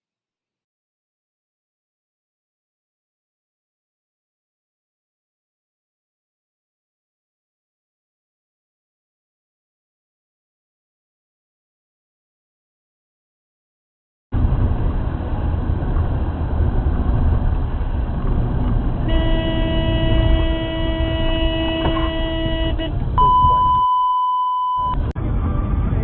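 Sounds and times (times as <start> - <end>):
car engine and road rumble: 14.3 - 26.0
car horn: 19.0 - 24.2
pure beep tone: 22.2 - 25.1.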